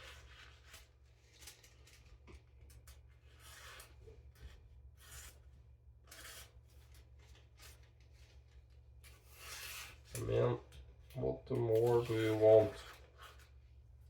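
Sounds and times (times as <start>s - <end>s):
knife slicing through paper: 5.0s - 5.4s, 6.1s - 6.6s, 11.7s - 13.5s.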